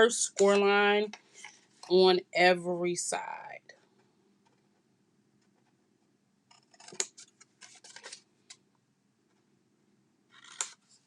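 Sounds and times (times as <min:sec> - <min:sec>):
scissors snipping paper: 0:06.7 - 0:07.3.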